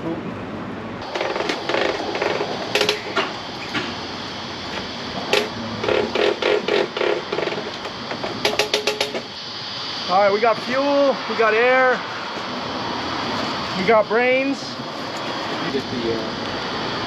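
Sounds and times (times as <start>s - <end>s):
tyre air pump clattering: 1.0s - 4.0s, 5.3s - 9.3s.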